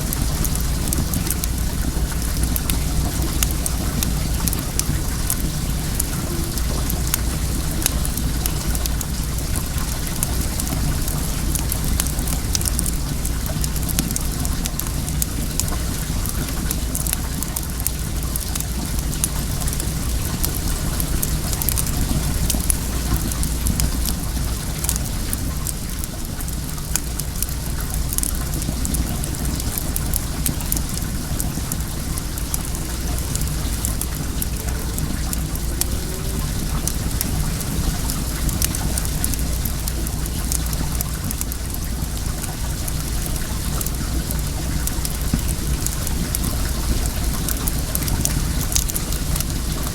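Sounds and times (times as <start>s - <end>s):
bonfire crackling and popping: 0.0s - 49.9s
flowing water rushing: 0.0s - 49.9s.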